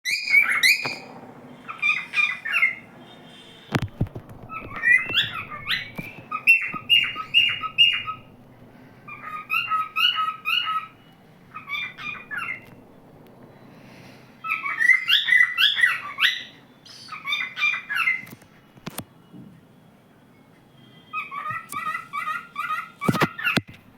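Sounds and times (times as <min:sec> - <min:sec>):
cockatiel whistling: 0:00.0 - 0:03.8, 0:04.5 - 0:08.4, 0:09.1 - 0:12.8, 0:14.4 - 0:18.3.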